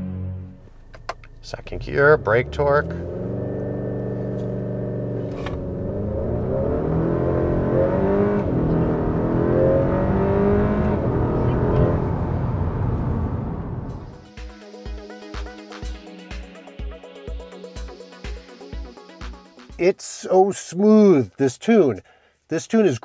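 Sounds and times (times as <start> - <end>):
car engine revving: 0.5 - 14.3.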